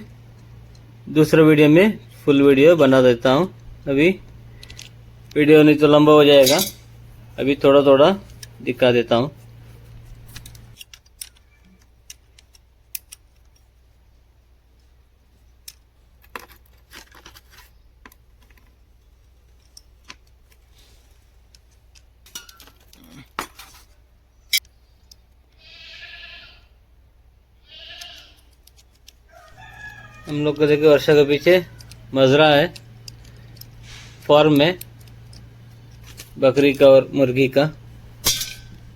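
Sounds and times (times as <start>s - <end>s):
goat bleating: 25.6s - 26.7s, 27.6s - 28.5s.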